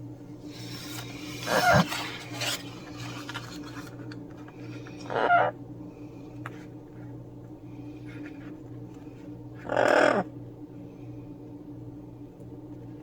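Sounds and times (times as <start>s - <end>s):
steady low hum: 0.0s - 13.0s
parrot squawk: 1.5s - 1.9s, 5.1s - 5.6s, 9.6s - 10.3s.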